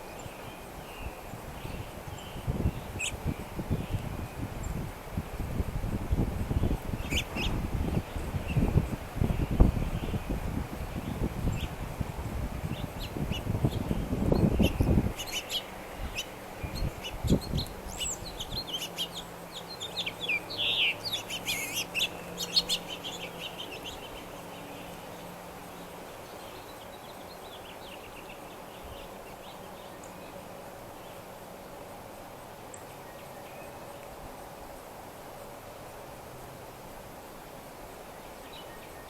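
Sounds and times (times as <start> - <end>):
birds chirping: 12.7 - 31.3.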